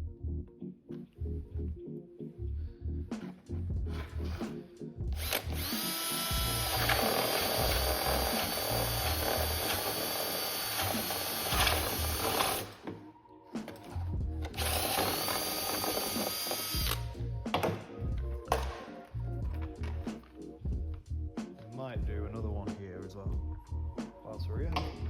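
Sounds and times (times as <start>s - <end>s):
power drill boring into plastic: 5.2s - 12.7s, 14.5s - 17.1s.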